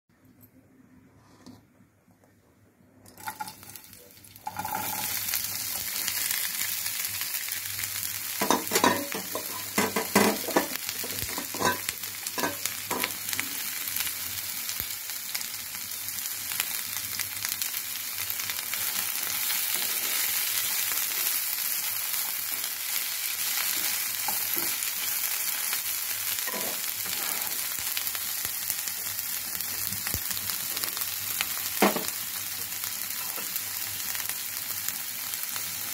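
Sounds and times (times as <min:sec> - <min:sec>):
vegetables sizzling in hot oil: 0:03.2 - 0:35.9
spatula knocking and scraping pan: 0:08.4 - 0:13.2, 0:26.5 - 0:27.4, 0:31.8 - 0:32.1.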